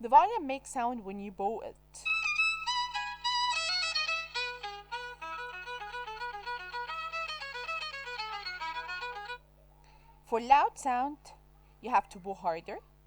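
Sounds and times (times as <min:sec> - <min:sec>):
bowed violin melody: 0:02.1 - 0:09.4.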